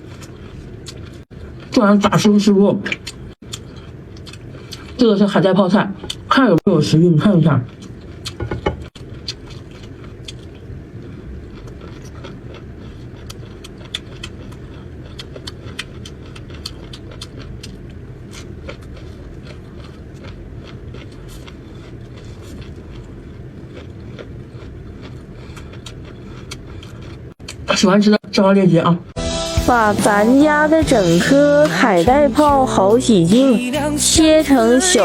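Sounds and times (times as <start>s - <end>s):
close chewing crunches: 0.0s - 1.8s, 2.9s - 5.0s, 7.7s - 27.6s
low background hum: 0.0s - 35.0s.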